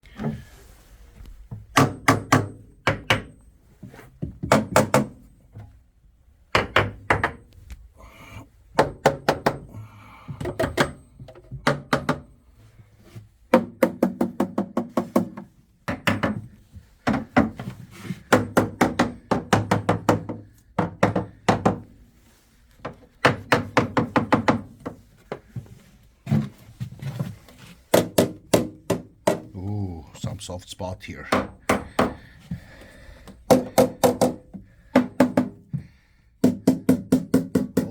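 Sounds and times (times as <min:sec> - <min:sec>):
hammer knocking on wood: 0:18.3 - 0:21.9, 0:23.2 - 0:25.0, 0:31.2 - 0:32.3, 0:33.5 - 0:35.6.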